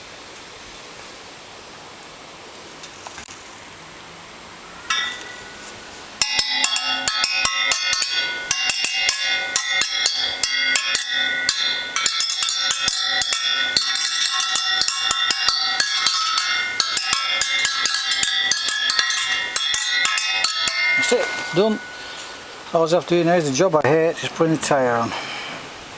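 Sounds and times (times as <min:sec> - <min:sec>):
bell-like ringing tones: 0:04.8 - 0:25.1.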